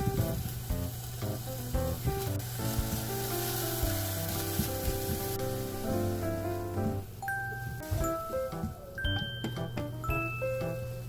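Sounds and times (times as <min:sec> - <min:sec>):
food sizzling in frying pan: 0:00.0 - 0:06.8
light background music: 0:00.0 - 0:11.0.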